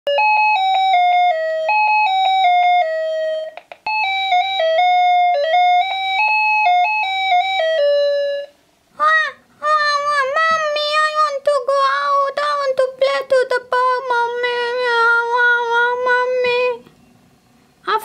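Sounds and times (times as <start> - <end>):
electronic chime melody: 0.1 - 8.6.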